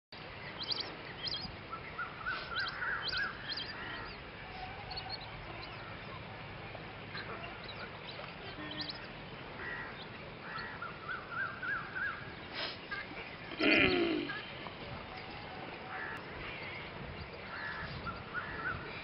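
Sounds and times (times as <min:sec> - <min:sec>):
background hiss: 0:00.2 - 0:19.0
high bird chirps: 0:00.6 - 0:06.3, 0:07.1 - 0:09.2
warbling bird call: 0:07.2 - 0:12.3.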